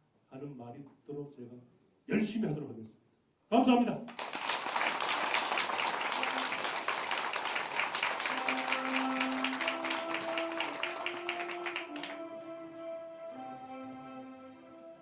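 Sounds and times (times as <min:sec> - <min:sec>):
audience applauding: 0:04.1 - 0:12.6
background music sustained notes: 0:05.6 - 0:15.0.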